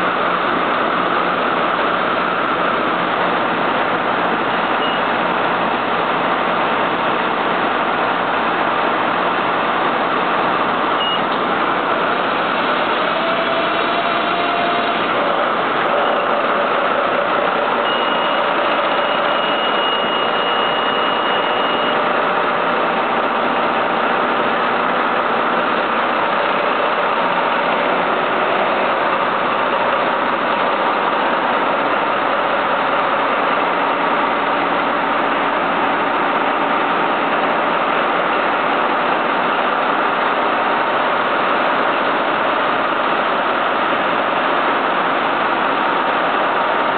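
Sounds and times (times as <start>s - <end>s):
diesel engine running: 0.0s - 46.9s
faint high whine: 15.9s - 22.0s.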